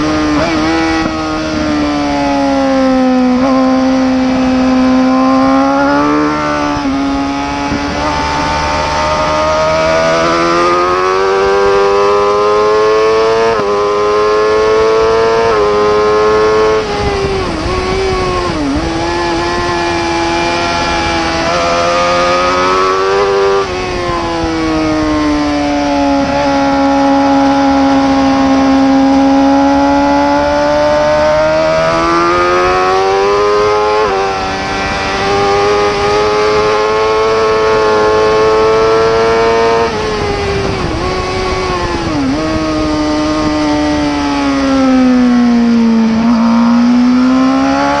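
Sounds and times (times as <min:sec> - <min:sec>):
racing motorcycle engine revving: 0:00.0 - 0:48.0.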